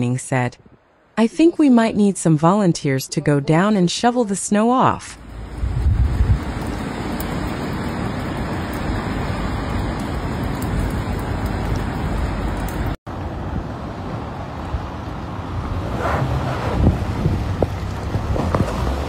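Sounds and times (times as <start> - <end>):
road traffic: 5.2 - 19.0.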